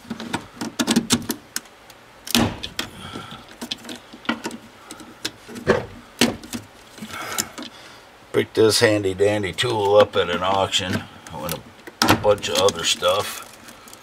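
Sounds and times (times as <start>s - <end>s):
plastic plugs clicking and rattling: 9.8s - 14.0s.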